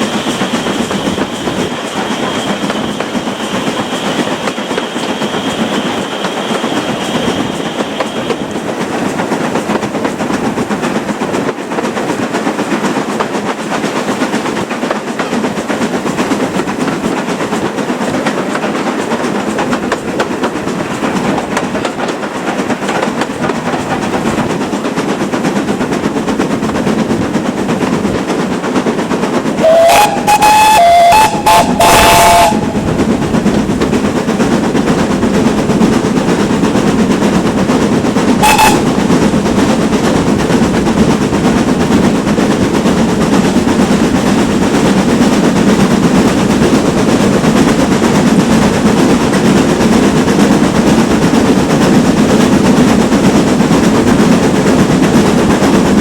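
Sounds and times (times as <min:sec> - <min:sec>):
train running noise: 0:00.0 - 0:56.0
steam locomotive whistle blasts: 0:29.6 - 0:32.9, 0:38.4 - 0:38.9.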